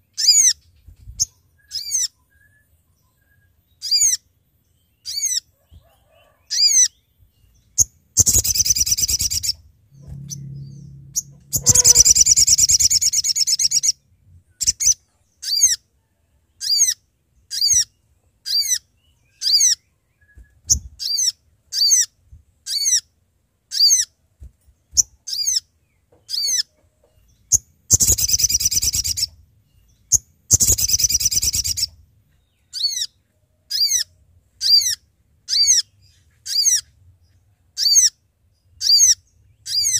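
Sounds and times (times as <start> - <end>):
bird calling sharp high notes: 8.3 - 14.0.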